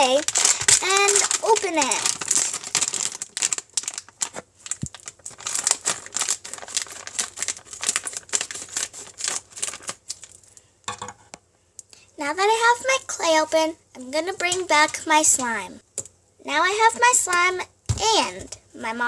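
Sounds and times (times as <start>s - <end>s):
packet being torn and crinkled: 0.0s - 10.6s.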